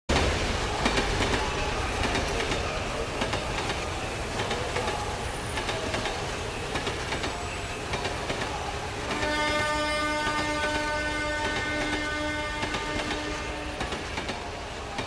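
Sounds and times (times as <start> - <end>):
train rumbling on tracks: 0.1 - 15.0.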